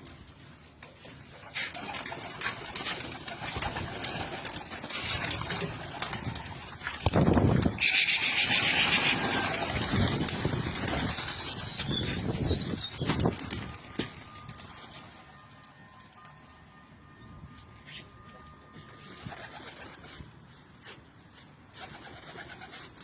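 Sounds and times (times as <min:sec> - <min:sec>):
wings flapping: 0:01.1 - 0:16.1
pigeons cooing: 0:07.6 - 0:13.2.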